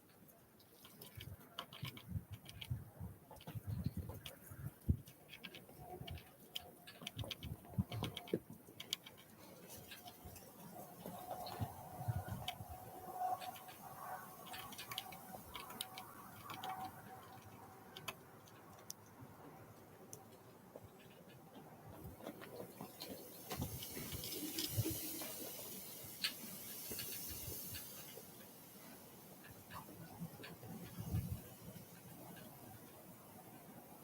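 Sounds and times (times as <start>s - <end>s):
soft hiss: 22.0s - 34.0s.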